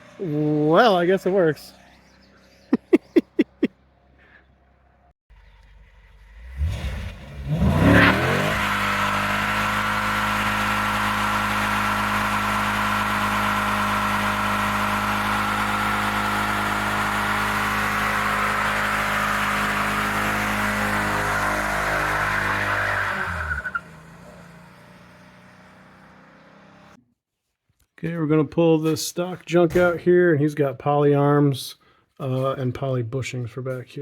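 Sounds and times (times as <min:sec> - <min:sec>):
car engine revving: 0:05.4 - 0:27.0.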